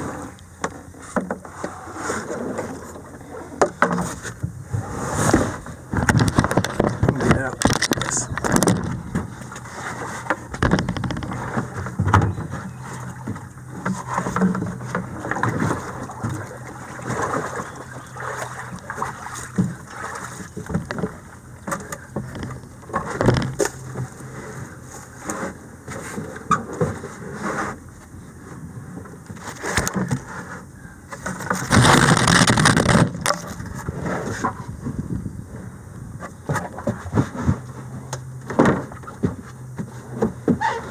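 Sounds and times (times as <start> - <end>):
paddle splashes: 0.0 - 27.8
paddle knocking against hull: 5.3 - 24.4.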